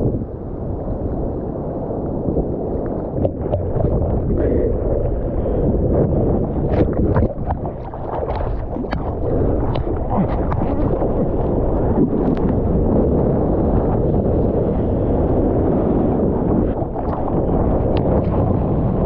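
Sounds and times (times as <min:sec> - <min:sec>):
wind buffeting microphone: 0:00.0 - 0:19.0
waves sloshing: 0:01.1 - 0:19.0
water splashes: 0:02.8 - 0:13.0, 0:15.1 - 0:19.0.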